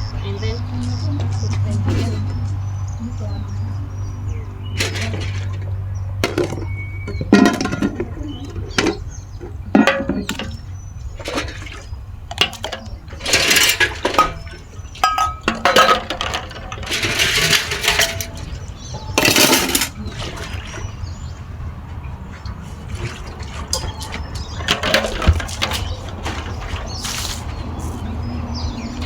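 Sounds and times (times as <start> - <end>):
dishes clinking: 4.6 - 20.9, 23.0 - 26.8
water splashing and pouring: 9.7 - 21.5, 22.2 - 29.0.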